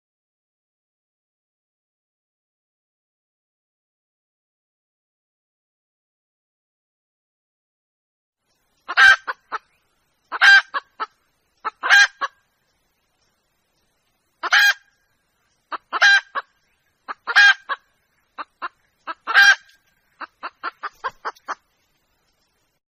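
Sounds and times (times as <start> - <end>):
hen clucks: 8.8 - 12.4, 14.4 - 15.0, 15.7 - 21.8
hen calling: 8.8 - 12.5, 14.4 - 22.0.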